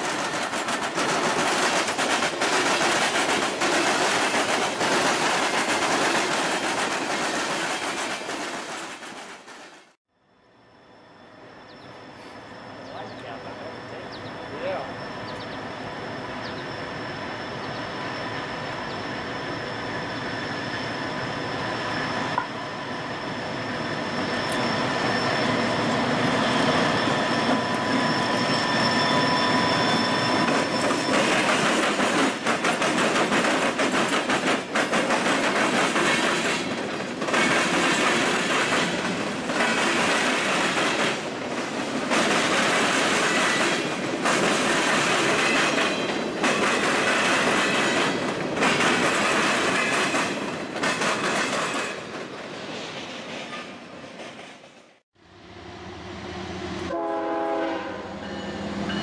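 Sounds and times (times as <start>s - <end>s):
wheels clacking over rail joints: 0.0s - 10.0s, 30.3s - 54.8s
diesel locomotives passing: 0.0s - 59.0s.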